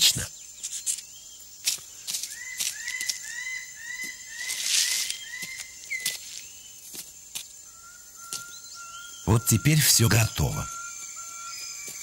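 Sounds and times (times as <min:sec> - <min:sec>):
clicks and rustles on forest floor: 0:00.0 - 0:08.6
high insect whine: 0:00.0 - 0:12.0.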